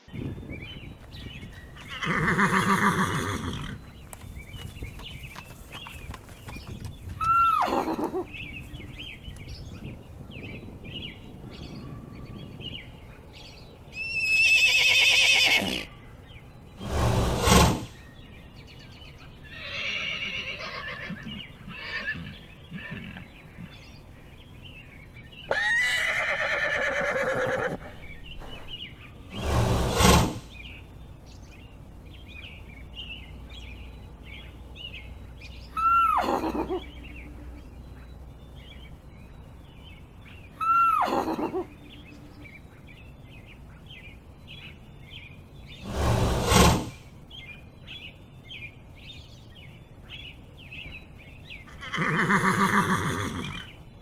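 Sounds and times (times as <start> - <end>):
horses neighing: 1.8 - 3.9, 7.2 - 8.4, 14.0 - 15.9, 19.5 - 23.8, 25.5 - 28.8, 35.8 - 37.0, 40.6 - 41.7, 51.7 - 53.7.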